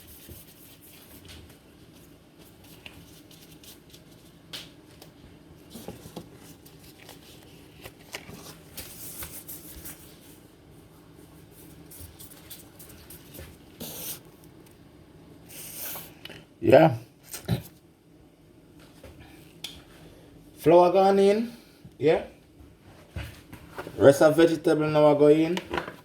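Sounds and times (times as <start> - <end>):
hands rubbing dough: 0.0 - 4.5.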